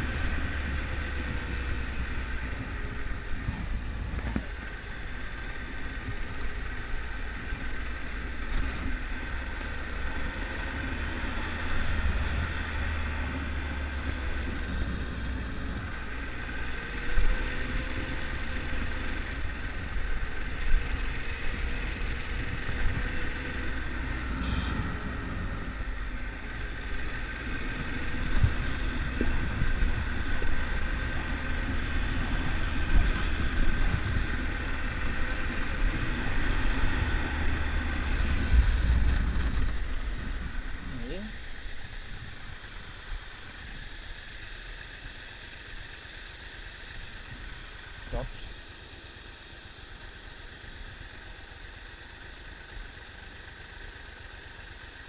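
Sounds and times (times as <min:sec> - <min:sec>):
wind rumble on microphone: 0:00.0 - 0:06.5, 0:27.2 - 0:43.9
motorcycle engine running: 0:00.0 - 0:55.0.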